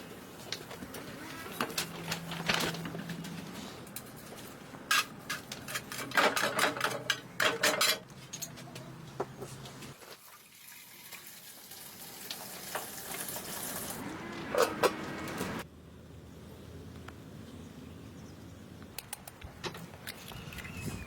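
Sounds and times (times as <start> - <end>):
utensils clinking on cookware: 4.9 - 8.7.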